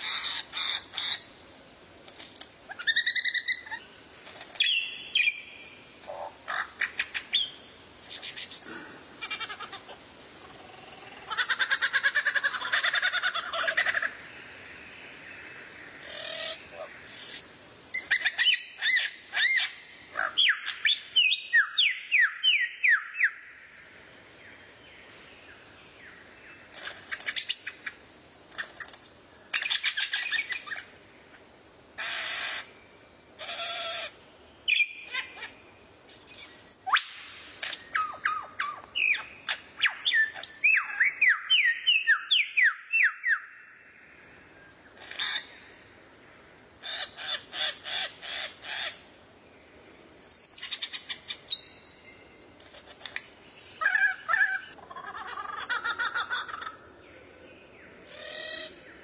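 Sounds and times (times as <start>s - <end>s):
songbird whistled song: 4.6s - 5.8s, 17.0s - 23.4s, 34.6s - 35.3s, 36.1s - 43.7s, 50.2s - 52.4s
bird harsh buzzy calls: 32.0s - 32.8s.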